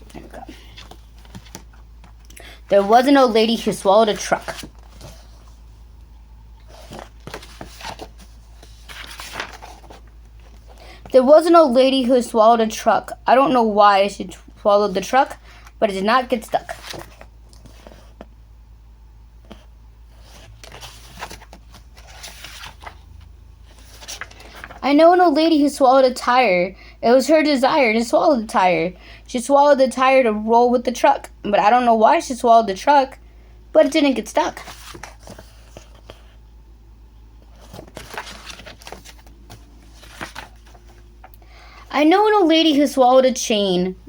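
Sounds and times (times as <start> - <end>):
low steady hum: 0.0 - 44.0
paper page turning: 0.1 - 5.6, 6.6 - 10.8, 16.6 - 18.2, 20.2 - 23.1, 23.7 - 24.8, 34.5 - 36.3, 37.5 - 41.3.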